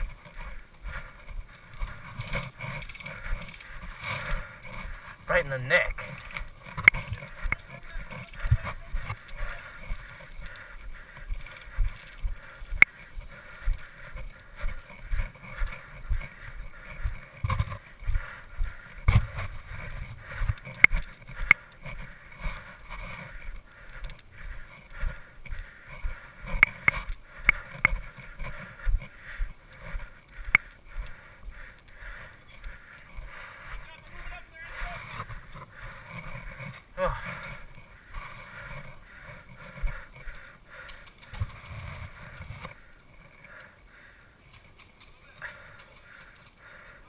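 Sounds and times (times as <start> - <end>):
sharp clicks: 5.8 - 16.4, 20.3 - 22.1, 23.2 - 33.2.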